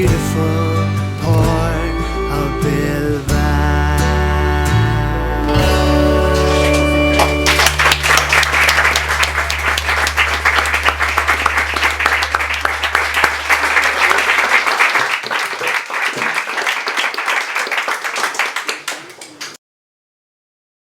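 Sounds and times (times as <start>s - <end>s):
audience applauding: 6.4s - 19.6s.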